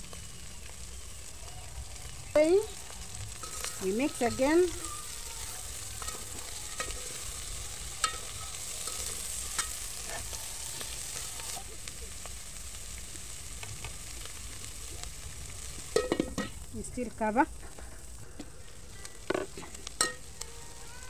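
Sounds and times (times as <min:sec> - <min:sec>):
fish and onions sizzling: 0:00.0 - 0:21.0
metal spoon clinking on pot: 0:16.0 - 0:16.6, 0:20.0 - 0:20.2.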